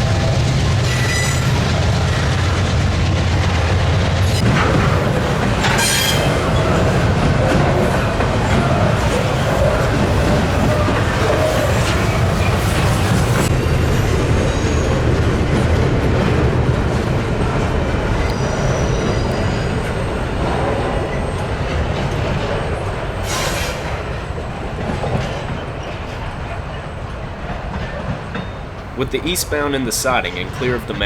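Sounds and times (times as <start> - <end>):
train wheels rumbling on track: 0.0 - 31.0
high wheel squeals: 0.8 - 2.7, 18.3 - 20.2.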